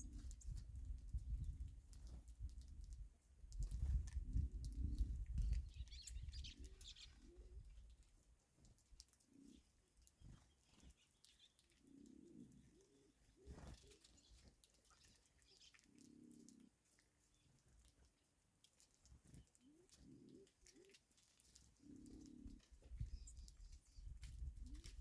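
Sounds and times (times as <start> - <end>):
small birds chirping: 0.0 - 25.0
dove cooing: 4.2 - 7.8, 11.8 - 14.2, 15.4 - 16.8, 19.4 - 21.0, 21.8 - 25.0.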